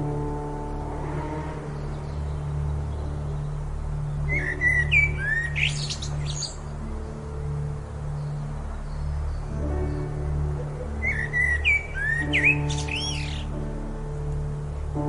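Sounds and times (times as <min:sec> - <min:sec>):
ambient music drone: 0:00.0 - 0:15.0
birds chirping and whistling: 0:04.2 - 0:06.7, 0:10.6 - 0:13.6.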